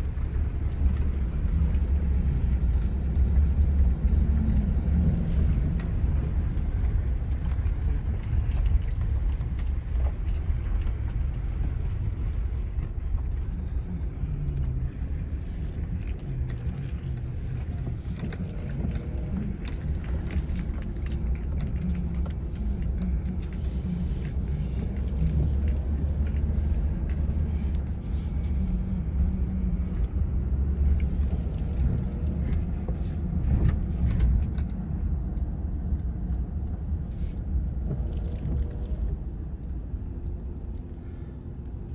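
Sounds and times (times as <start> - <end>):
car engine and road rumble: 0.0 - 41.9
light clicks and rattles: 0.0 - 41.9.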